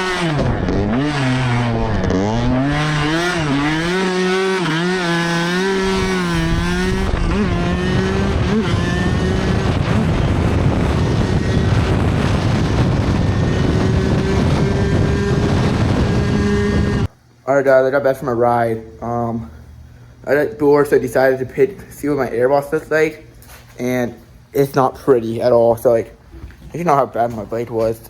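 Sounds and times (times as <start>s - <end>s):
dirt bike engine revving: 0.0s - 17.1s
wind rush: 5.5s - 17.1s.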